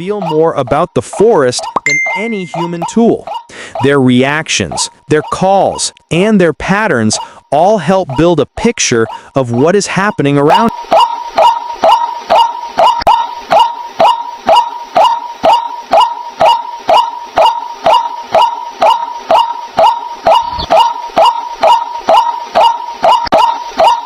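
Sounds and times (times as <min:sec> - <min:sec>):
waterhen harsh call: 0:00.0 - 0:05.8, 0:07.1 - 0:08.3, 0:09.0 - 0:24.0.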